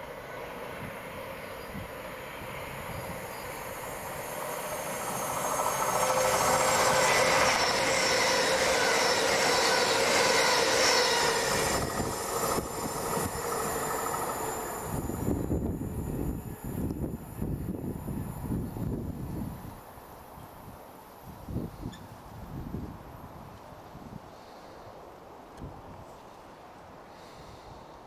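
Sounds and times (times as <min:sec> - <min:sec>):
train whine: 0:00.0 - 0:21.8
train passing at speed: 0:00.0 - 0:28.0.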